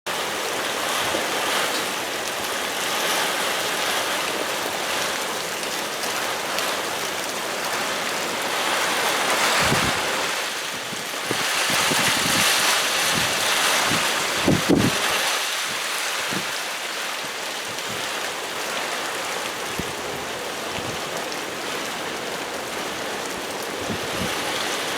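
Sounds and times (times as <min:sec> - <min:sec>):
heavy rain hissing: 0:00.1 - 0:24.9
wind buffeting microphone: 0:08.3 - 0:16.6, 0:19.5 - 0:24.9.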